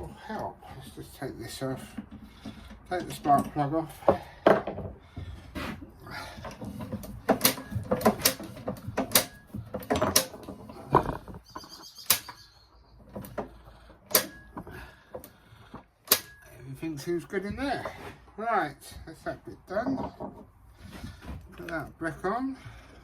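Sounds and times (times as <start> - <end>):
short squeaks: 10.6 - 13.4.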